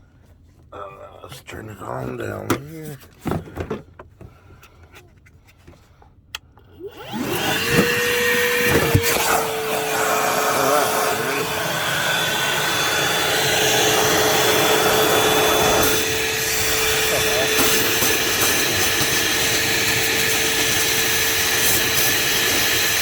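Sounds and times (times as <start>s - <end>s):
vacuum motor whining: 6.6s - 23.0s.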